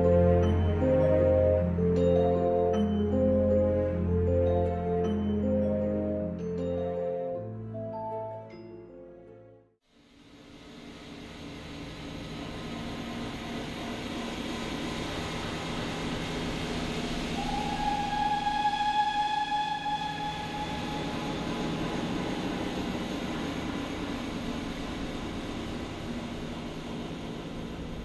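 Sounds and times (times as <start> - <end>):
train rumbling past: 10.1 - 28.0
train whistle: 12.6 - 24.5.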